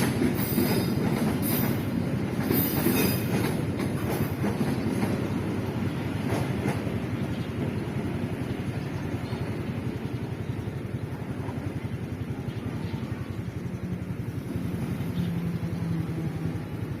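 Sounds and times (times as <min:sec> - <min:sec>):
steady engine hum: 0:00.0 - 0:17.0
motorcycle and car engines: 0:08.4 - 0:17.0.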